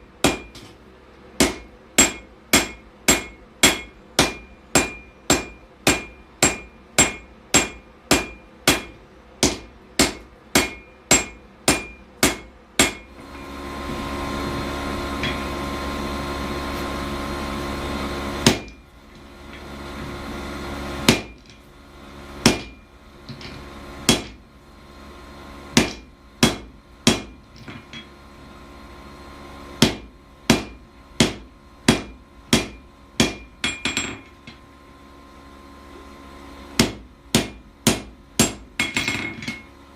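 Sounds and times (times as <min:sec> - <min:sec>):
hammer ringing on steel anvil: 0:02.0 - 0:09.0, 0:10.0 - 0:13.1.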